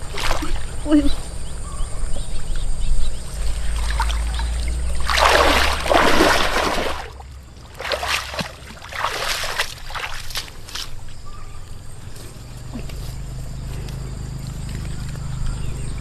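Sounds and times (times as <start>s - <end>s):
water splashing: 0.0s - 1.0s, 3.4s - 11.2s.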